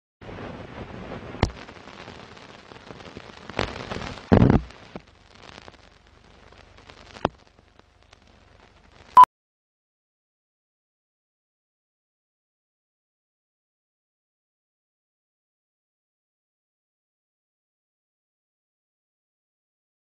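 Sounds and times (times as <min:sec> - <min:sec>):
rushing hiss: 0:00.3 - 0:07.3.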